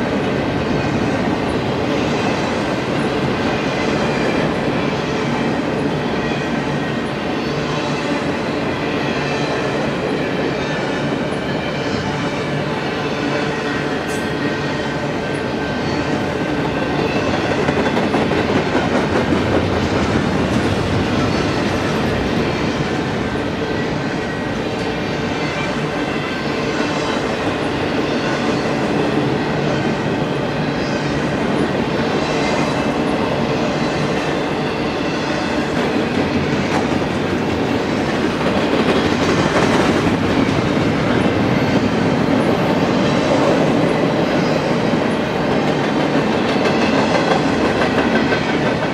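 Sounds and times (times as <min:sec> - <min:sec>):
train wheels rumbling on rail: 0:00.0 - 0:48.9
clickety-clack over rail joints: 0:16.6 - 0:22.9, 0:35.5 - 0:48.9.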